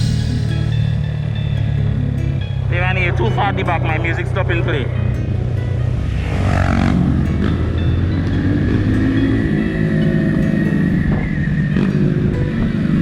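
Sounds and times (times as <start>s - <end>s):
motorcycle engine running: 0.0s - 2.7s.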